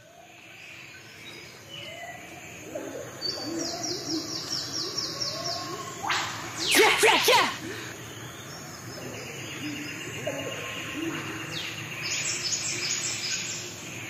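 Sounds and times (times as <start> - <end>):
birds singing and chirping: 0.0 - 14.0.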